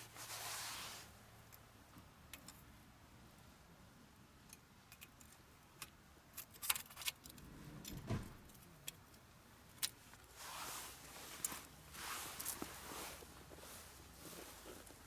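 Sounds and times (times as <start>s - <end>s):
short rustle: 0.0s - 1.2s, 10.2s - 15.0s.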